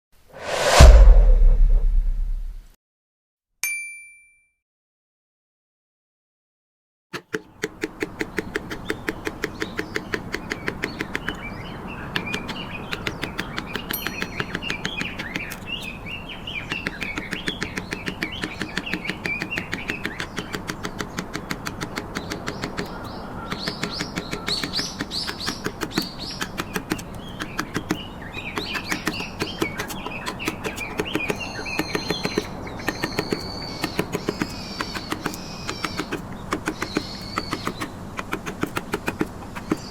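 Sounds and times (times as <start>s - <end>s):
mallet tapping chisel into wood: 7.2s - 11.4s, 12.2s - 15.9s, 16.7s - 39.9s
small birds chirping: 7.3s - 39.9s.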